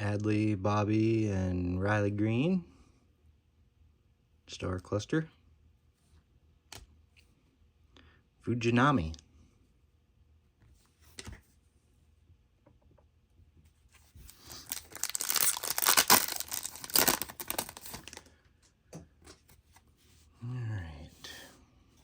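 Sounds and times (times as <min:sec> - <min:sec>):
foil wrapper tearing and crinkling: 0:14.3 - 0:18.3.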